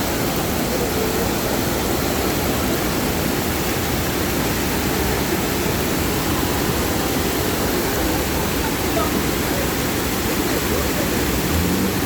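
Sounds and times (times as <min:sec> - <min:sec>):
floodwater rushing along road: 0:00.0 - 0:12.0
heavy rain: 0:00.0 - 0:12.0.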